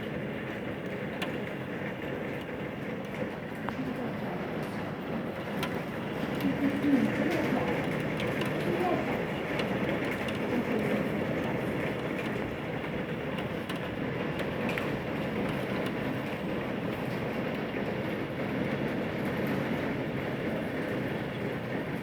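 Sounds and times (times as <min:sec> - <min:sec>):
hailstones ticking: 0:00.0 - 0:22.0
heavy rain and hail: 0:00.0 - 0:22.0.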